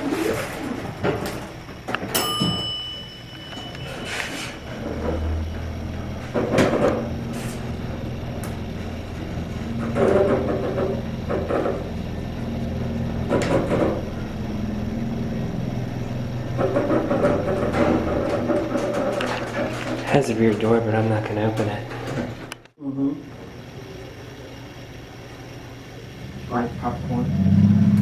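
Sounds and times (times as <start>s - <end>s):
elevator humming: 0.0s - 28.0s
elevator knocks and rattles: 4.7s - 14.6s, 16.2s - 22.5s.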